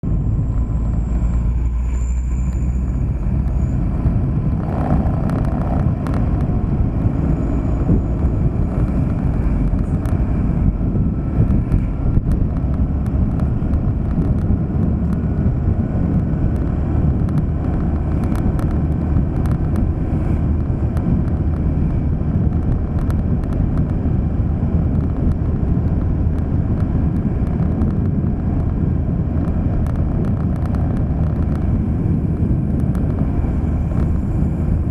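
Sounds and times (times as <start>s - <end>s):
car engine and road noise: 0.0s - 34.9s
light ticks: 16.1s - 19.9s, 29.4s - 31.8s, 32.6s - 33.2s.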